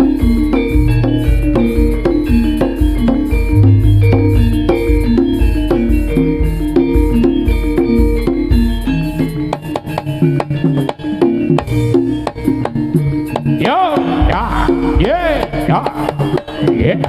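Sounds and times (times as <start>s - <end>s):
hand drum strokes: 0.0s - 7.4s
metallophones ringing melody: 0.0s - 16.7s
deep bass tones: 3.5s - 5.6s.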